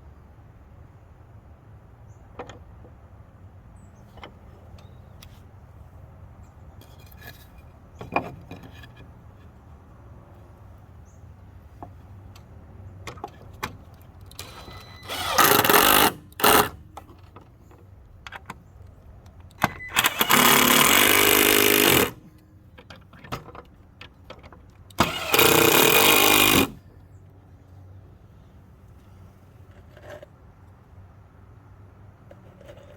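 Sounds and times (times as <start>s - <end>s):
power screwdriver driving screws: 14.4s - 16.8s, 19.6s - 22.2s, 24.9s - 26.8s.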